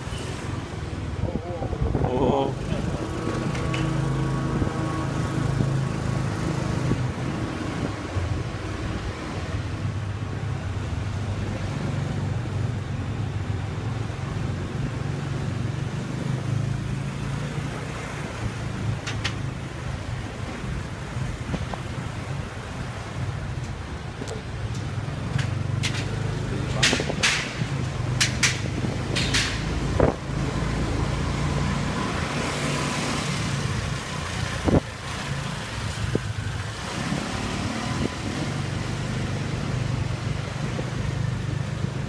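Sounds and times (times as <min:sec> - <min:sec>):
surrounding traffic: 0:00.0 - 0:42.0
wind and road noise: 0:00.0 - 0:42.0.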